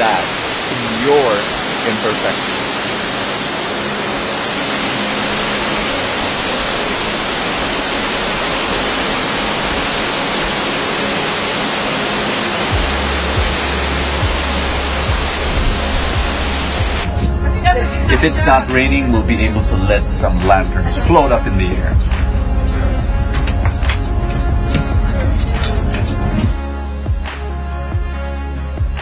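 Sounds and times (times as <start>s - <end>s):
waterfall rushing: 0.0s - 19.6s
background music: 0.0s - 29.0s.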